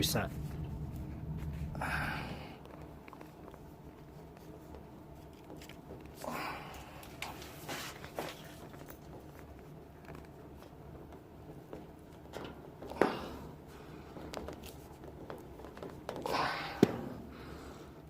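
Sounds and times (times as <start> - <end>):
steady low hum: 0.0 - 18.0
plastic hose rustle: 2.7 - 11.6.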